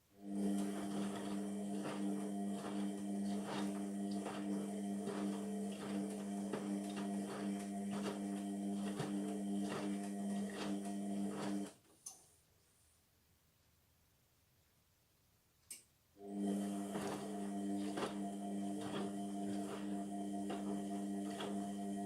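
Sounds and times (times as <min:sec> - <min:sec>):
washing machine motor hum: 0:00.1 - 0:11.8, 0:16.2 - 0:22.0.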